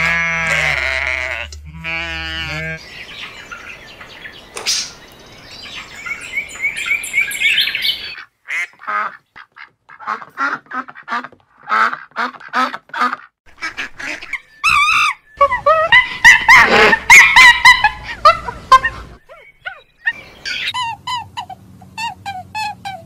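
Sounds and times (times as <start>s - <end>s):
ducks quacking: 0.0s - 5.0s, 7.6s - 21.6s
small bird chirping: 2.8s - 8.2s.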